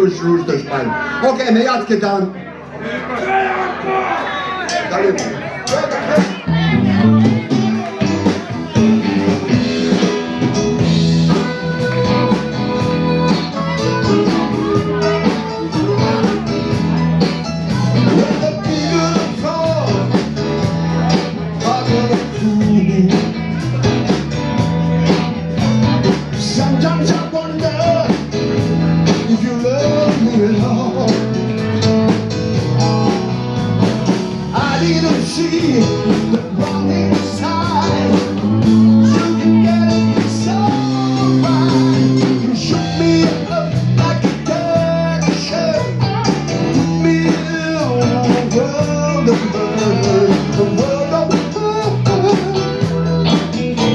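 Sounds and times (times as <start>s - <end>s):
blues band playing: 3.2s - 53.9s
guitar: 4.3s - 53.9s
bass line: 6.1s - 53.9s.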